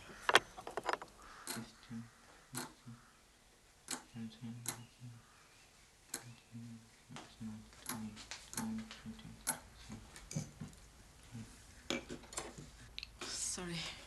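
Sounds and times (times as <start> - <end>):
irregular clicks and knocks: 0.2 - 1.7, 7.1 - 10.8.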